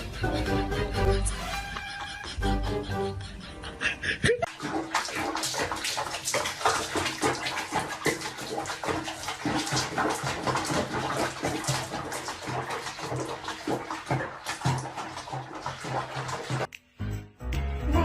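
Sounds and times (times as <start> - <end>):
water splashing and sloshing: 4.4 - 16.7.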